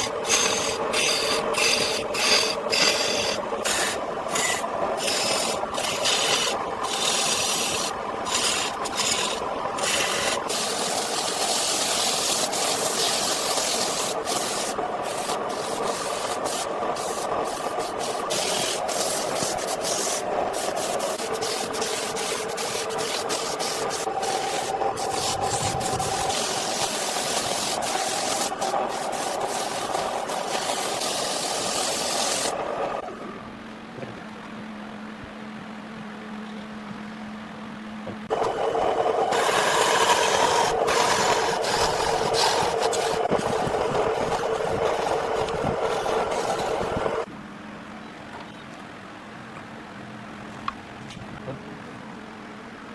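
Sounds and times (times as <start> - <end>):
wood rasping and scraping: 0.0 - 32.6, 39.3 - 47.3
steady tool hum: 0.0 - 47.3.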